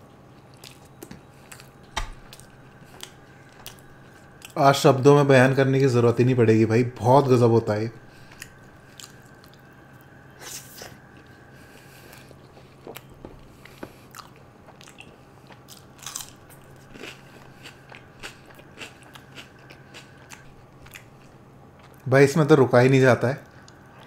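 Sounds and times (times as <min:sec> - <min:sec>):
faint steady hum: 0:00.0 - 0:24.0
wet chewing: 0:00.3 - 0:04.6, 0:08.1 - 0:10.1, 0:11.0 - 0:22.0.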